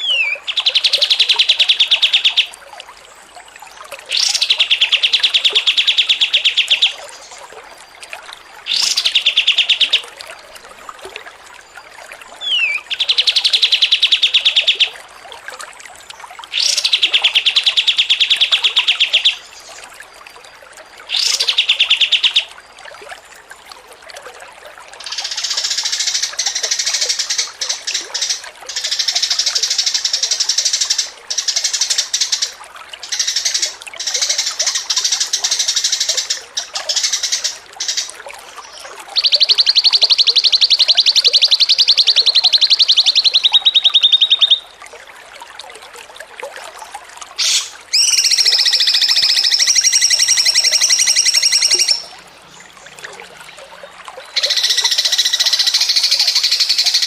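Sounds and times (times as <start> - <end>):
songbird trilling: 0.0 - 2.5, 12.4 - 15.0, 39.2 - 44.7, 47.4 - 52.2, 54.3 - 57.0
high bird chattering: 47.4 - 52.1.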